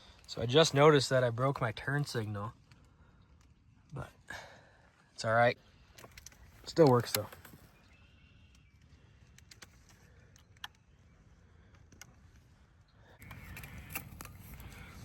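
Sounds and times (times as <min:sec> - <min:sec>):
small clicks and taps: 0:05.9 - 0:07.7, 0:08.5 - 0:10.9, 0:11.7 - 0:12.5.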